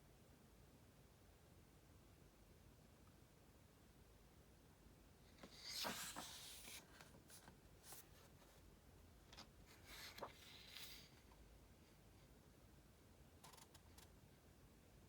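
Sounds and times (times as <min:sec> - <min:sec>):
book pages rustling: 0:05.4 - 0:08.6, 0:09.3 - 0:11.3.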